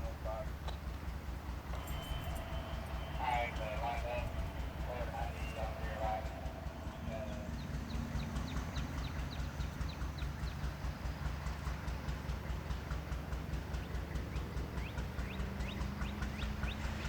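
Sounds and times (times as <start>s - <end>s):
diesel locomotive engine throbbing: 0.0s - 17.0s
faint high chirps: 1.7s - 8.7s.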